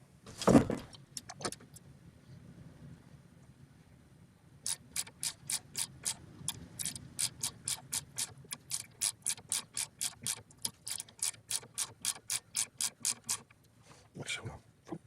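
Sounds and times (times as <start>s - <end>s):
ratcheting clicks: 4.6s - 13.7s.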